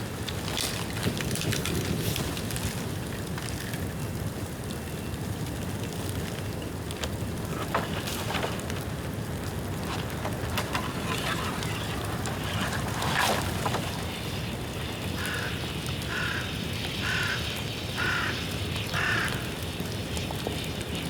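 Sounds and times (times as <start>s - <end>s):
bonfire burning and crackling: 0.0s - 21.0s.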